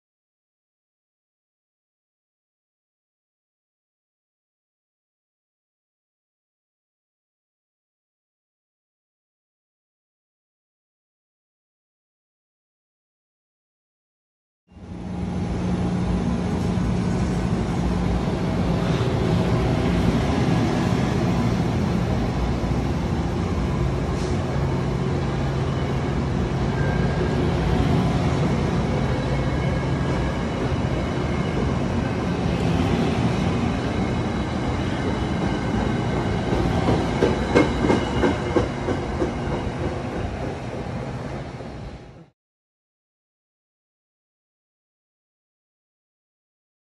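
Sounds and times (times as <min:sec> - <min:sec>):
train wheels rumbling on rail: 0:14.9 - 0:42.3
wheels clacking over rail joints: 0:35.0 - 0:40.3.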